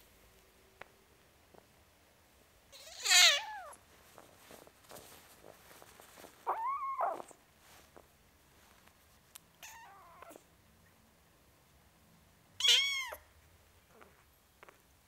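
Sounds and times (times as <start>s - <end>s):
kitten meowing: 2.8s - 3.8s, 6.5s - 7.4s, 9.6s - 10.4s, 12.6s - 13.2s.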